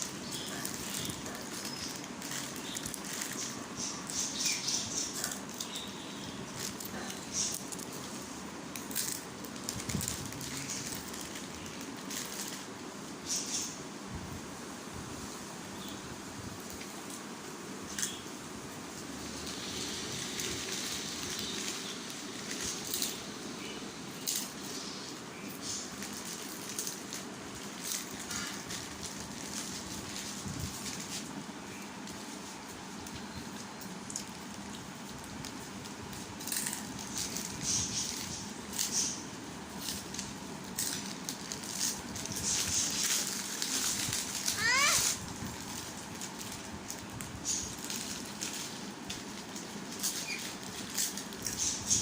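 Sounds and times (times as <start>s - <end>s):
parrot crunching a snack: 0.0s - 13.4s, 25.6s - 32.5s, 33.6s - 52.0s
steady background hiss: 0.0s - 52.0s.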